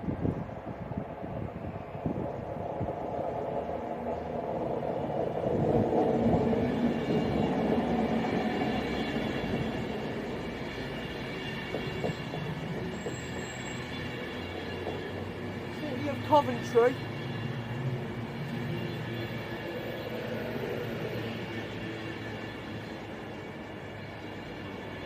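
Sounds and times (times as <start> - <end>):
electric train rumbling: 0.0 - 25.0.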